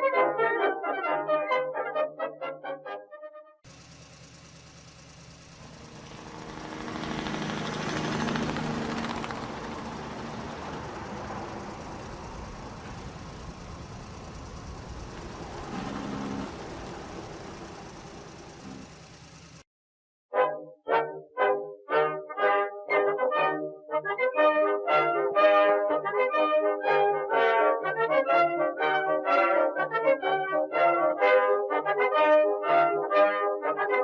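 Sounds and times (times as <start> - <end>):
vehicle engine rumble: 3.7 - 19.6.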